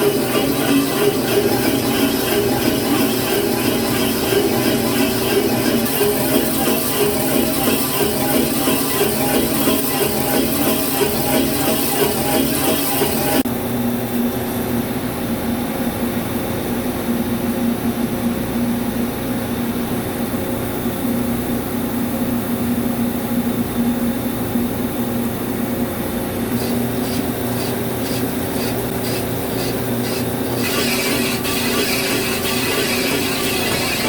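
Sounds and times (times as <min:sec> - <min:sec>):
lathe humming drone: 0:00.0 - 0:13.4, 0:26.6 - 0:34.0.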